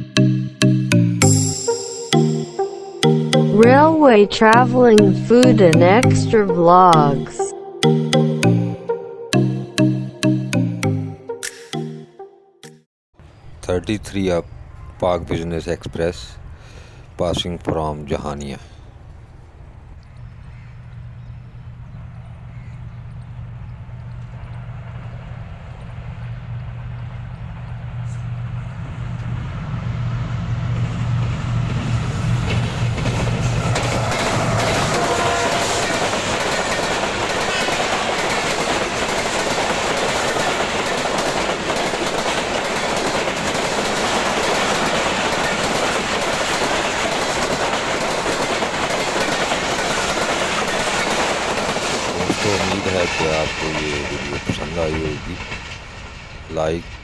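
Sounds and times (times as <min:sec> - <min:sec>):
locomotive engine drone: 0:13.2 - 0:57.0
train coaches rushing and rattling: 0:13.2 - 0:57.0.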